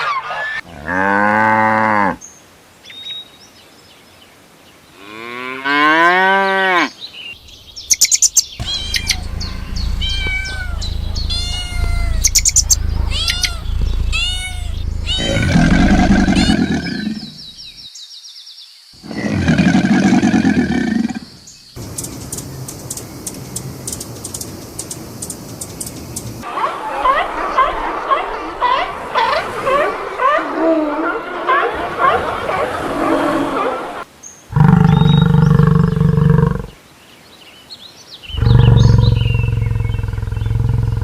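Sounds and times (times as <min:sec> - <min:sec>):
farm animal calls: 0:08.6 - 0:17.8, 0:38.3 - 0:41.0.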